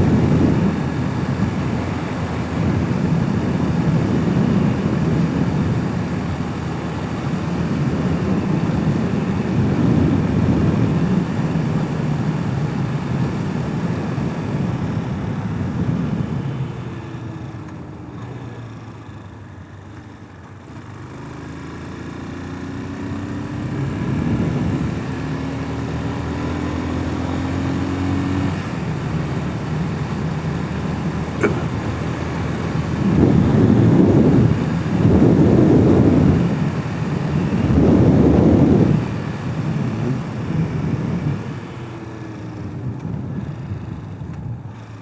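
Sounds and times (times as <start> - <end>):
riding wind noise: 0.0 - 18.8, 22.3 - 45.0
motorcycle engine running: 0.0 - 45.0.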